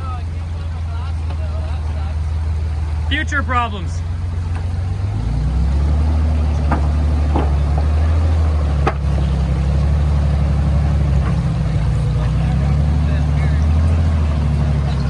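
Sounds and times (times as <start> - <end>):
engine droning at low revs: 0.0 - 15.0
sharp knocks and clicks: 6.5 - 9.3.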